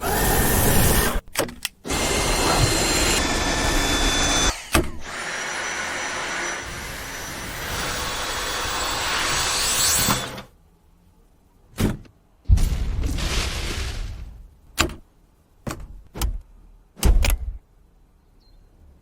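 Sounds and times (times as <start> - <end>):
stick vacuum cleaner running: 1.9 - 7.3.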